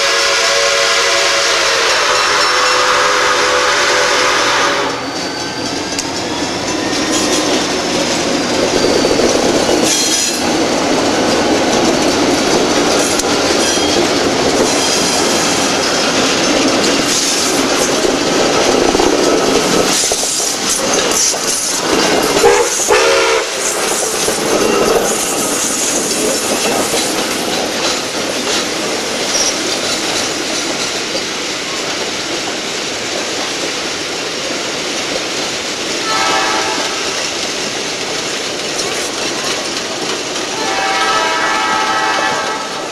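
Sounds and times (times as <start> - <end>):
train tone: 0.0 - 28.1, 36.0 - 37.2, 40.4 - 42.9
train wheels clattering on rails: 0.0 - 42.9.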